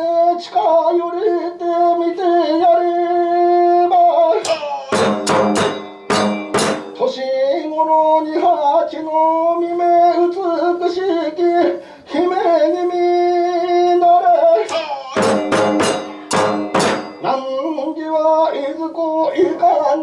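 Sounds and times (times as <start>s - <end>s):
sharp percussion strikes: 4.4s - 7.2s, 14.7s - 17.5s.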